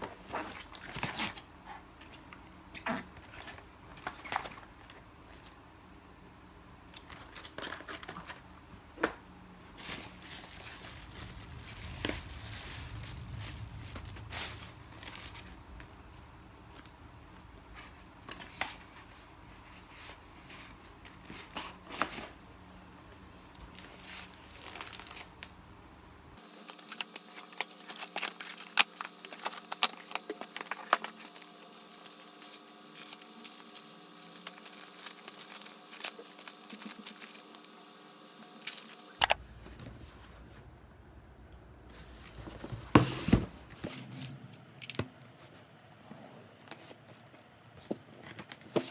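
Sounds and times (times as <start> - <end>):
plastic mailer bags crinkling: 7.0 - 25.6, 26.4 - 39.2.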